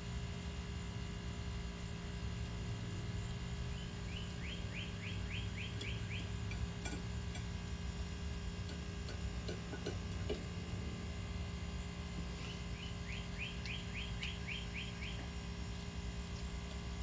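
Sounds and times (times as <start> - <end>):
low background hum: 0.0 - 17.0
bird chirping: 3.7 - 6.7, 12.4 - 15.5.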